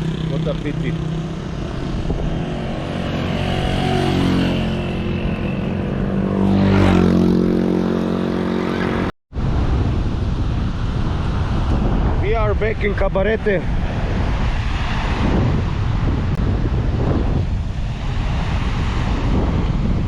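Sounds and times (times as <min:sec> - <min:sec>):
wind noise on microphone: 0:01.0 - 0:08.2, 0:09.0 - 0:20.0.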